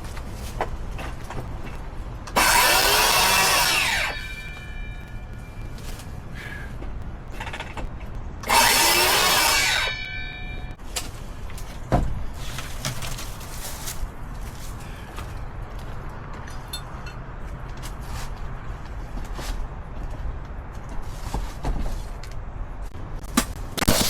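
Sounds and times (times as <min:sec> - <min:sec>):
power tool running: 0:02.3 - 0:04.9, 0:08.4 - 0:10.7.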